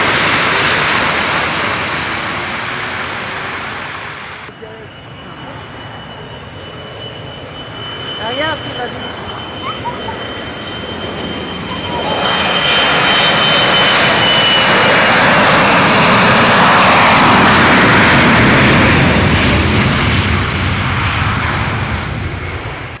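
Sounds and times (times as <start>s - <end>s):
jet engines roaring: 0.0s - 23.0s
thin high whine: 4.4s - 14.8s.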